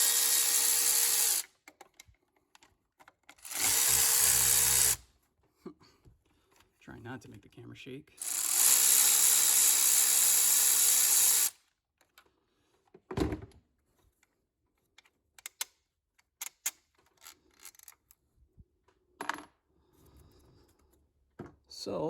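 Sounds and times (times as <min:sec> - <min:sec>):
electric ratchet running: 0:00.0 - 0:01.5, 0:03.4 - 0:05.0, 0:08.2 - 0:11.6
clicks of tools being handled: 0:15.0 - 0:18.2.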